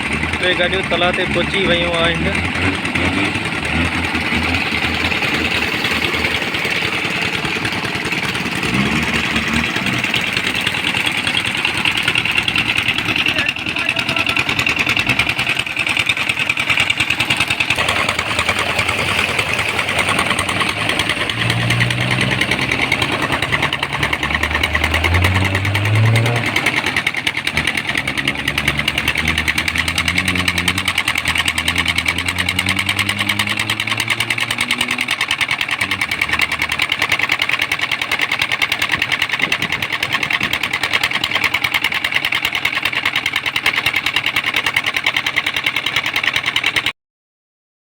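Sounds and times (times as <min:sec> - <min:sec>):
deeper engine rising in pitch: 0:00.0 - 0:07.1, 0:07.8 - 0:10.6, 0:17.8 - 0:37.2
tractor diesel engine running: 0:00.0 - 0:46.9.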